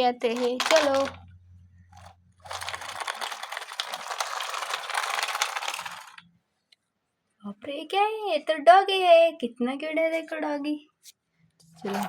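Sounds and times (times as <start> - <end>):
plastic toy crackling and rattling: 0.0 - 1.3, 1.9 - 6.4.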